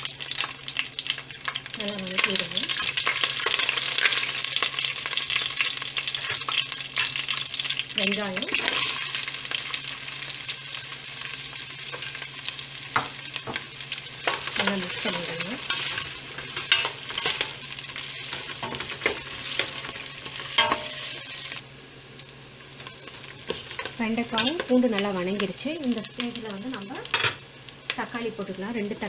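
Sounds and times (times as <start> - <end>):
onions sizzling in oil: 0.0 - 29.0
spoon scraping and knocking pot: 20.6 - 21.2.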